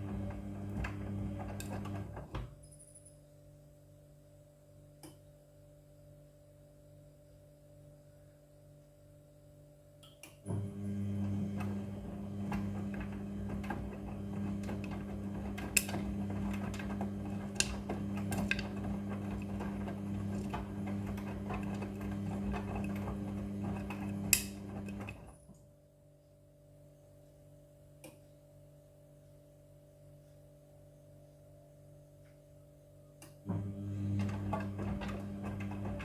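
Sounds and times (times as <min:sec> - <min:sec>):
washing machine drum tumbling: 0:00.0 - 0:02.4, 0:10.5 - 0:25.3, 0:33.5 - 0:36.0.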